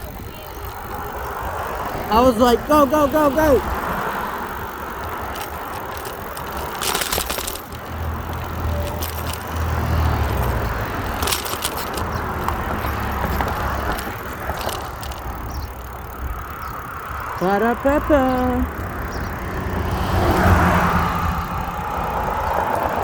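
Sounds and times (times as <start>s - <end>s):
bicycle tyre and road noise: 0.0s - 23.0s
short clattering rattles: 3.8s - 16.8s.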